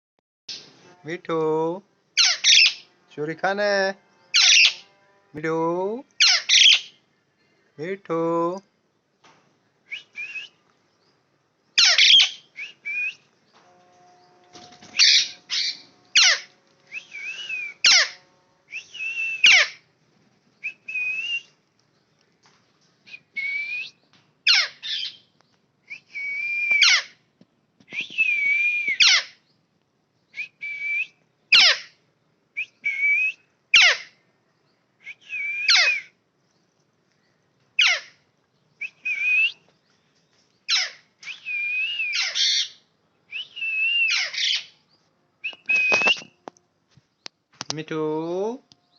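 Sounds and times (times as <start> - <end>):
parrots squawking: 2.2 - 2.9, 4.4 - 4.8, 6.2 - 6.9, 11.8 - 12.4, 14.9 - 16.6, 17.6 - 18.3, 19.4 - 19.8, 24.5 - 25.2, 26.8 - 27.2, 29.0 - 29.4, 31.5 - 31.9, 33.8 - 34.1, 35.7 - 36.1, 37.8 - 38.2, 40.7 - 41.0, 42.0 - 42.8, 44.0 - 44.8.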